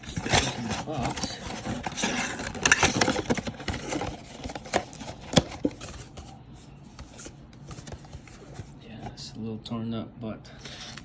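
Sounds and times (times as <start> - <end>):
packaging handling: 0.0 - 8.8.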